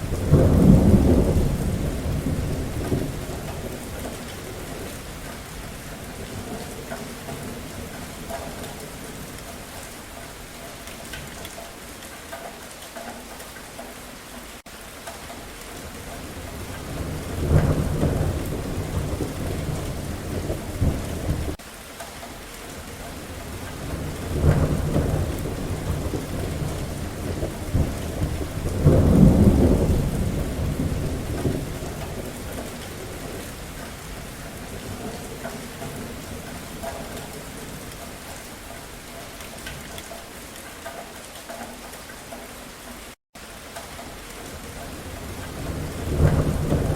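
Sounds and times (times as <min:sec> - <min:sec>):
thunder rumbling: 0:00.0 - 0:09.4, 0:16.1 - 0:21.6, 0:23.2 - 0:39.0, 0:44.5 - 0:46.9
steady rain: 0:00.0 - 0:46.9.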